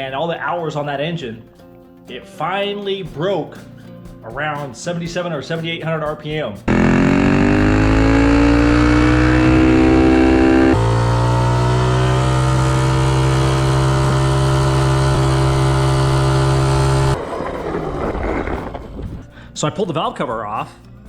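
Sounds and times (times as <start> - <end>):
minibike engine revving: 6.7 - 17.5.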